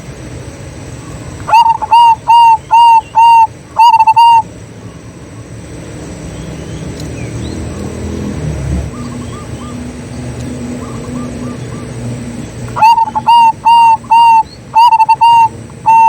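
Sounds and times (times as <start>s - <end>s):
dove cooing: 1.4s - 4.5s, 10.7s - 16.0s.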